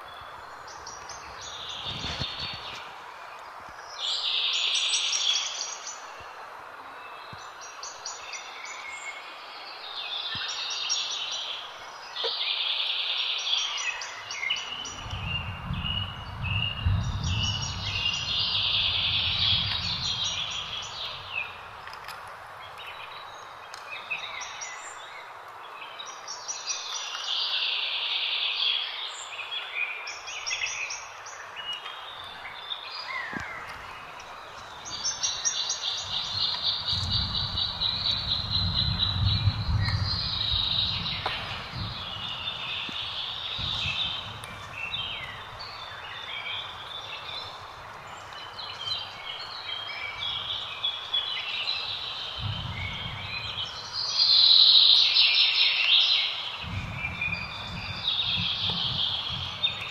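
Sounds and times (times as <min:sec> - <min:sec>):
birds chirping: 0:00.0 - 0:59.9
steady outdoor hiss: 0:00.0 - 0:59.9
low rumble: 0:14.8 - 0:21.5, 0:36.1 - 0:46.0, 0:52.4 - 0:54.1, 0:56.6 - 0:59.9.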